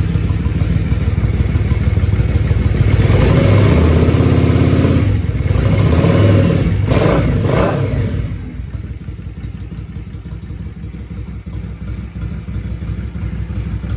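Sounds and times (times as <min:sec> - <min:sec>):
motorcycle engine revving and idling: 0:00.0 - 0:13.9.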